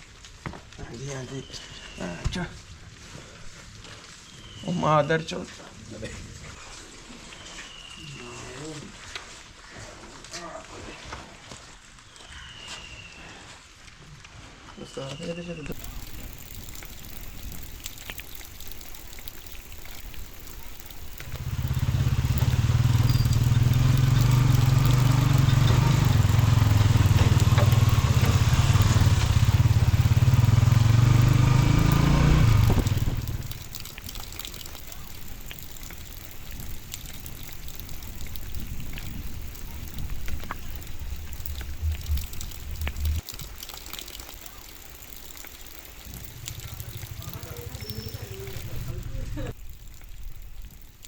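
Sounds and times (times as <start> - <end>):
scattered clicks: 15.7 - 51.0
vehicle engine running: 15.8 - 43.2, 46.0 - 49.7.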